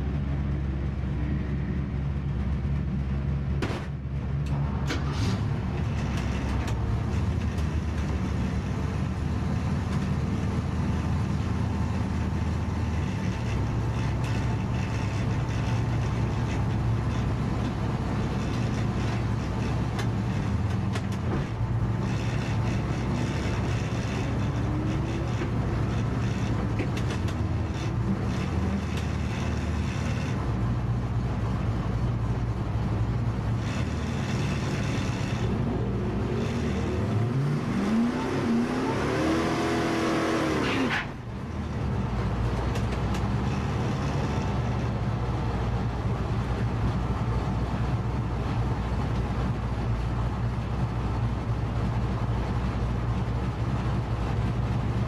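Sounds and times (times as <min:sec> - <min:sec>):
engine idling: 0:00.0 - 0:37.2.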